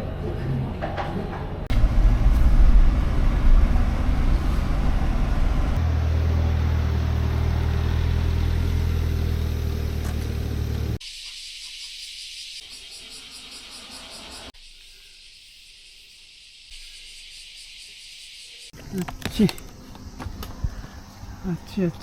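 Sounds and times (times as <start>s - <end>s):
truck engine running: 1.6s - 11.0s.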